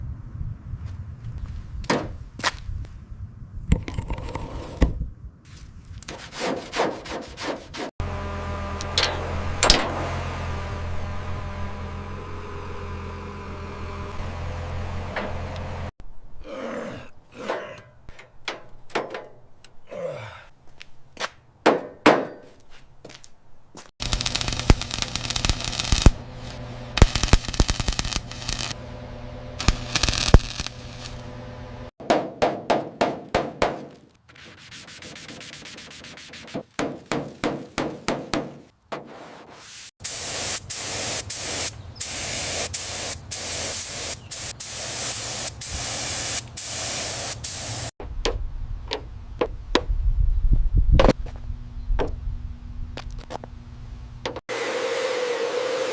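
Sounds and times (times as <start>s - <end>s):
sanding strokes: 6.1s - 8.0s, 34.3s - 47.9s.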